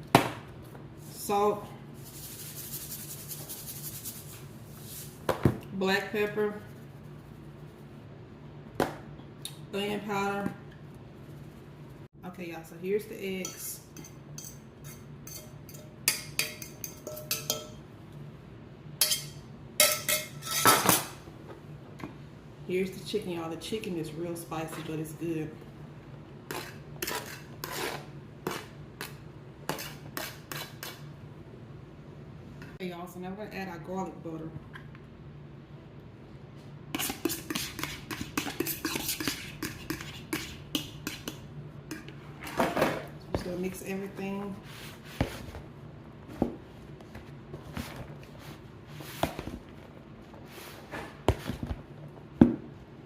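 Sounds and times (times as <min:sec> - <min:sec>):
low steady hum: 0:00.0 - 0:53.0
utensil clinking against a dish: 0:13.4 - 0:17.8, 0:19.0 - 0:21.0
utensil scraping a bowl: 0:26.5 - 0:31.0, 0:37.0 - 0:42.5.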